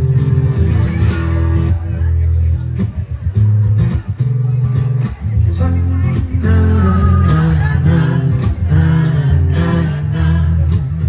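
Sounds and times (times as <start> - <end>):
acoustic guitar: 0.0 - 11.0
bass guitar: 0.0 - 11.0
person singing: 5.5 - 11.0.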